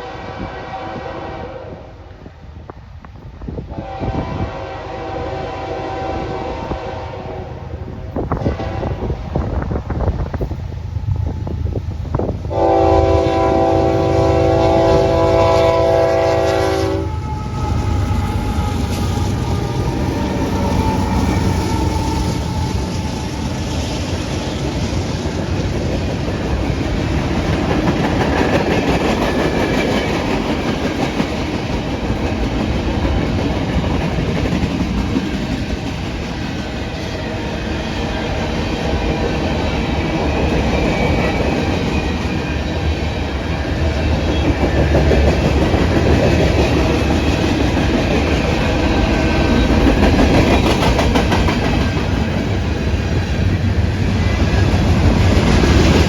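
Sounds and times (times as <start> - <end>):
locomotive horn: 0.0 - 2.0, 3.7 - 7.7, 8.4 - 9.2, 12.5 - 19.6
train rolling past rumble: 0.0 - 56.0
train wheels clickety-clack: 17.2 - 56.0.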